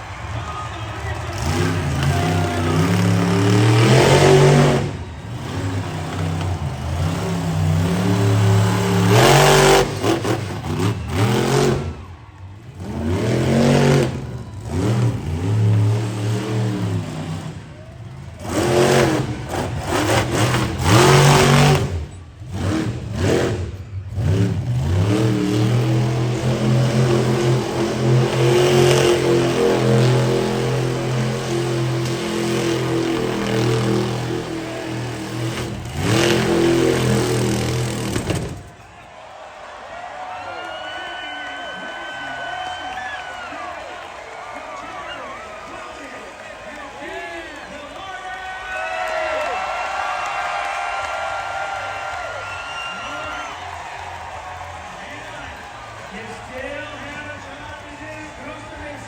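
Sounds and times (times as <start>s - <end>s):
monster truck engine revving: 0.0s - 39.3s, 40.3s - 59.0s.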